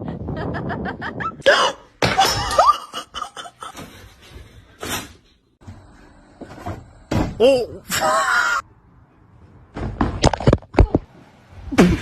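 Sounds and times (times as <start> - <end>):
person laughing: 0.2 - 3.9.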